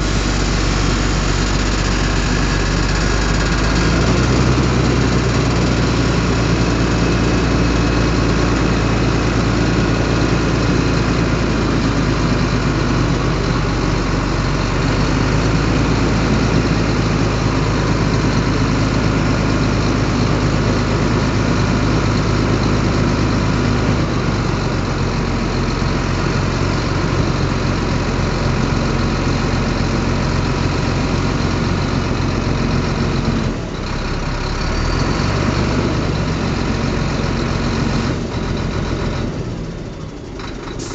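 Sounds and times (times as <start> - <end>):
diesel engine under load: 0.0 - 40.9.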